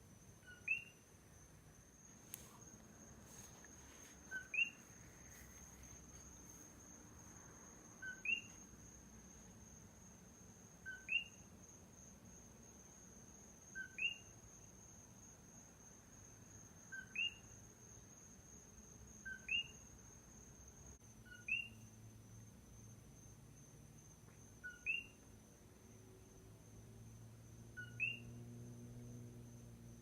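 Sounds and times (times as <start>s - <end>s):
frog calling two-note call: 27.8s - 28.3s.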